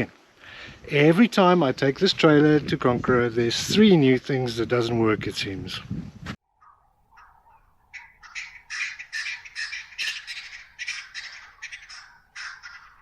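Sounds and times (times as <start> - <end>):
birds squawking: 6.6 - 13.0.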